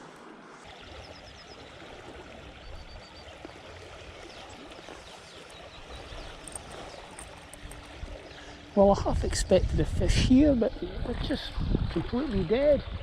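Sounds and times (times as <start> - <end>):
river water rushing: 0.0 - 9.0.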